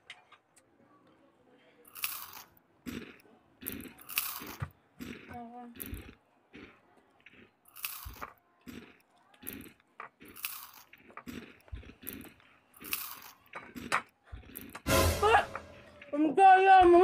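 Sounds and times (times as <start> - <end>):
crunchy food being chewed: 1.8 - 14.9.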